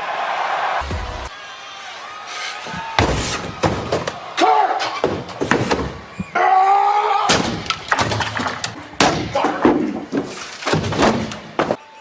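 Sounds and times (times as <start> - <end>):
things crashing and banging: 3.0 - 4.2, 7.3 - 11.8.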